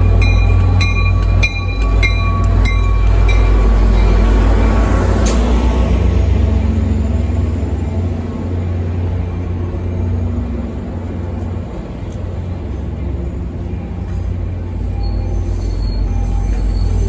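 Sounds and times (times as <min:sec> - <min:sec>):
train wheels rumbling on rails: 0:00.0 - 0:17.0
faint wheel squeals: 0:14.8 - 0:17.0.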